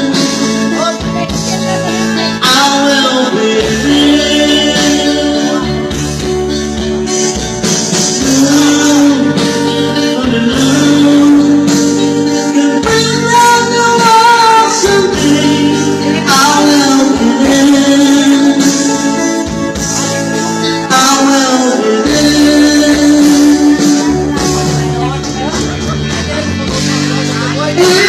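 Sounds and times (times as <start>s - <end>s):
instrumental backing music with guitar: 0.0s - 28.0s
man singing: 0.0s - 28.0s.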